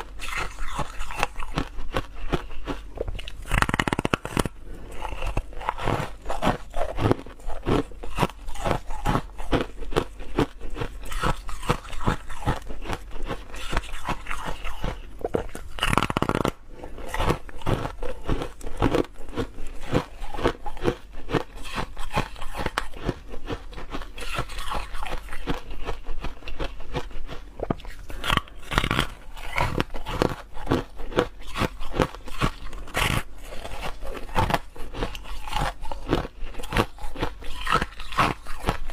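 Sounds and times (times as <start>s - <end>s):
person chewing ice: 0.0s - 38.9s.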